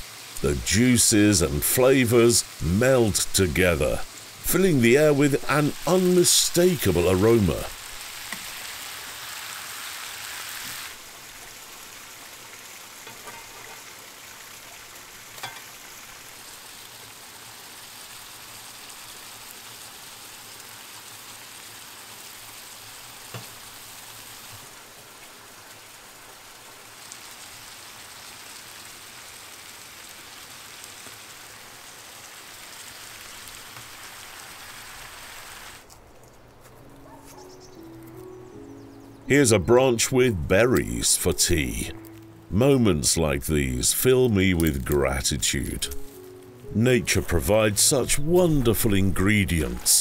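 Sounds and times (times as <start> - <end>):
food frying sizzle: 0.0 - 36.3, 40.9 - 42.5.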